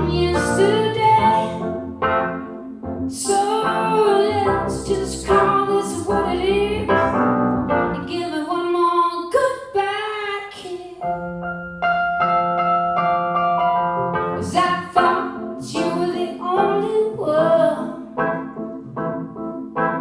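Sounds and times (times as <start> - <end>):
woman singing: 0.0 - 1.8, 3.1 - 7.2, 7.9 - 11.2, 14.4 - 18.2
keyboard accompaniment: 0.0 - 8.4, 11.0 - 20.0.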